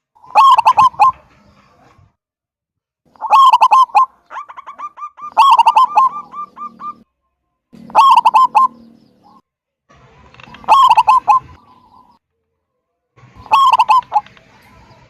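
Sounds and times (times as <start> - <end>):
dove cooing: 0.2 - 2.1, 3.1 - 7.1, 7.8 - 9.4, 10.4 - 12.2, 13.3 - 15.0.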